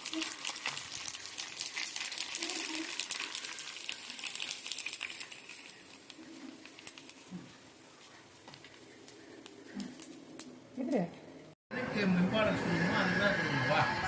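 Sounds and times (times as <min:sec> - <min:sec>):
dense irregular crackling: 0:00.0 - 0:11.0.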